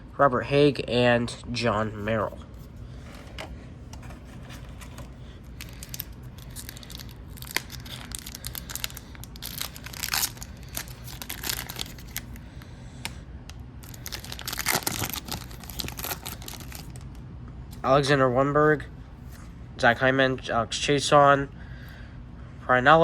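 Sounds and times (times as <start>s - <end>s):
wrapper crinkling and tearing: 4.0s - 12.4s, 13.8s - 17.2s.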